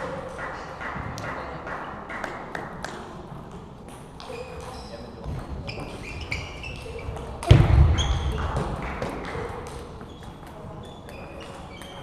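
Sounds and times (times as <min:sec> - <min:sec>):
shoe squeaks: 0:04.3 - 0:08.4, 0:10.0 - 0:12.0
loud bang: 0:07.4 - 0:08.8.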